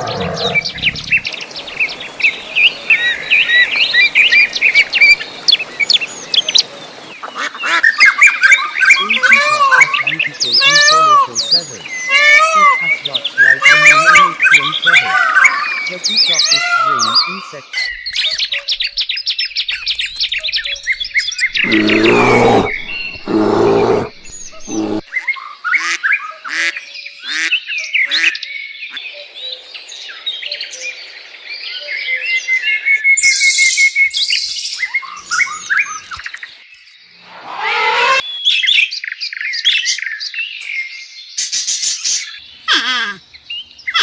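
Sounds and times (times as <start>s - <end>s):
birds chirping and whistling: 0.0s - 26.3s, 31.6s - 42.7s
peafowl harsh calls: 7.3s - 15.8s, 16.4s - 17.5s, 21.5s - 25.0s, 37.2s - 38.4s, 42.7s - 43.2s.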